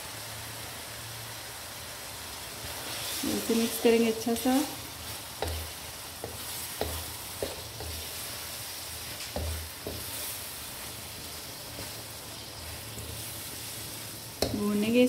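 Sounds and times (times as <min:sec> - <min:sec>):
food sizzling in oil: 0:00.0 - 0:15.0
wooden spoon stirring: 0:04.5 - 0:15.0
spoon knocking against pan: 0:05.4 - 0:08.0, 0:09.4 - 0:10.1.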